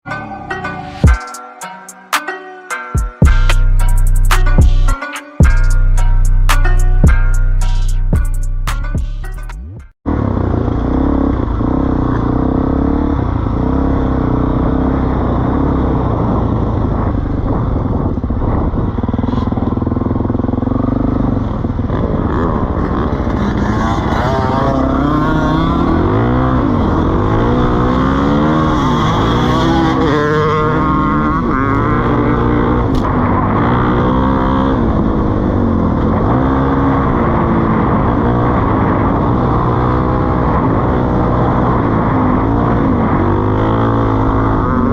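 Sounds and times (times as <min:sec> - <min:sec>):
motorcycle engine idling and revving: 0:03.0 - 0:44.9.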